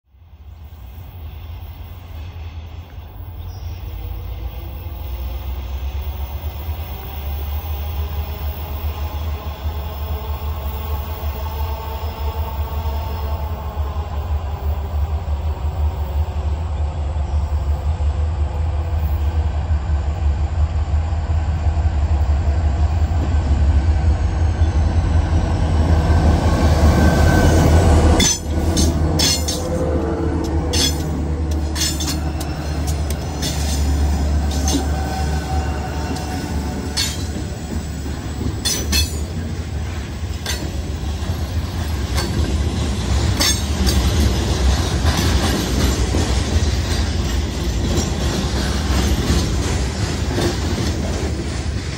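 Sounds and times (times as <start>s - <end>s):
diesel locomotive engines droning: 0.1s - 51.9s
wheels clicking over rail joints: 28.2s - 51.9s.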